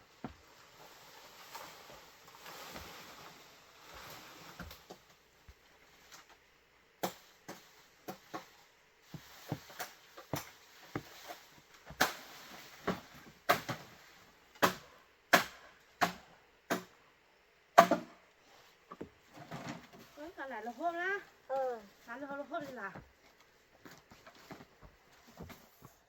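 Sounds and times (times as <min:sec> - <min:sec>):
hand tool striking bamboo: 0:09.1 - 0:13.8, 0:14.6 - 0:16.9, 0:17.8 - 0:18.1.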